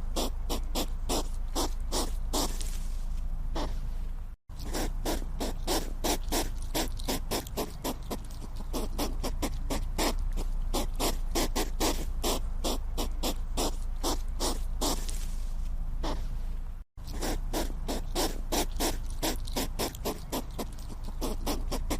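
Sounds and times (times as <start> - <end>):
hedgehog snuffling puffs: 0.0 - 4.0, 4.6 - 21.9
steady low hum: 0.0 - 21.9.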